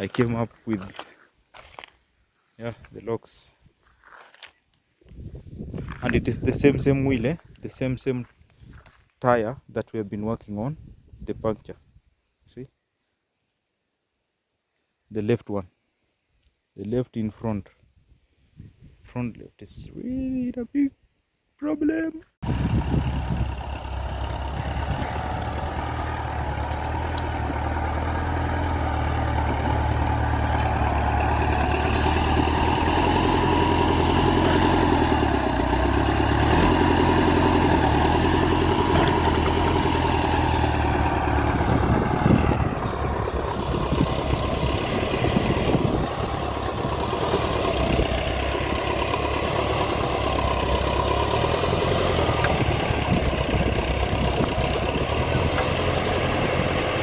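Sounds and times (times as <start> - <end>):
engine knock: 22.4 - 57.0
tractor diesel engine idling: 22.4 - 57.0.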